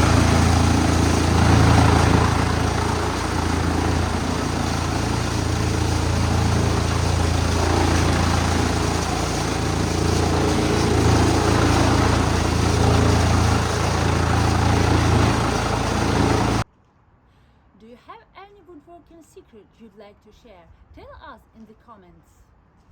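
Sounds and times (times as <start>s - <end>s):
wood chipper engine humming: 0.0s - 16.6s.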